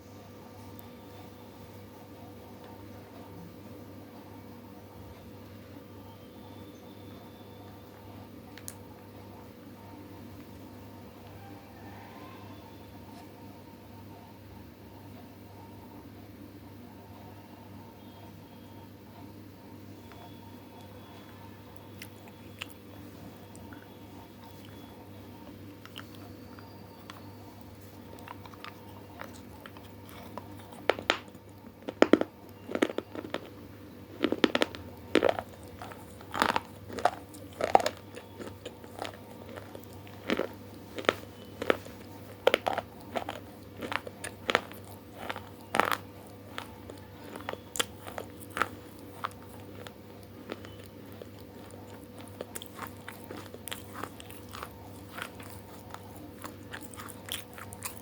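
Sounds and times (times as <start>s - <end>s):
faint steady hum: 0.0s - 58.0s
crunchy food chewing: 20.0s - 58.0s.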